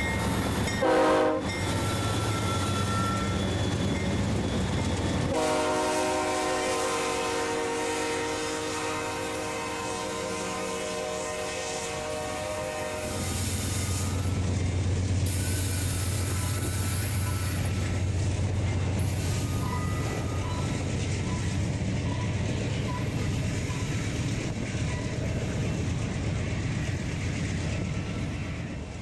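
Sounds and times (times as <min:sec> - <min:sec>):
freight train rolling past: 0:00.0 - 0:29.0.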